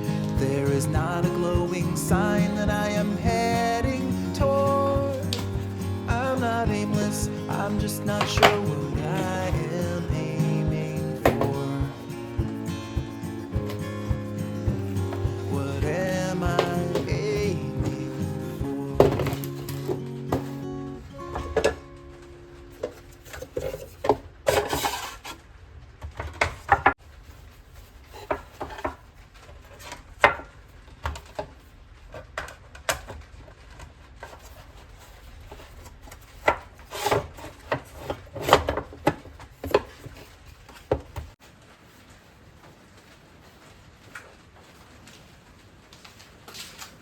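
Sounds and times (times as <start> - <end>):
objects knocking on hard surface: 0.0 - 18.3
scraping or rubbing: 22.9 - 25.4, 34.2 - 38.7.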